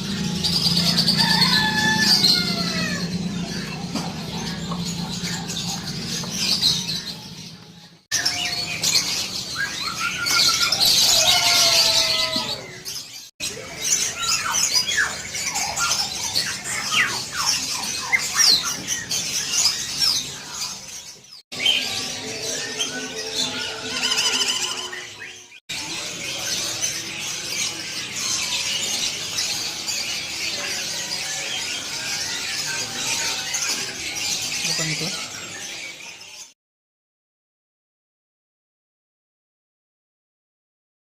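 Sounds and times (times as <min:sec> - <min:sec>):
songbirds chirping: 0:00.0 - 0:36.6.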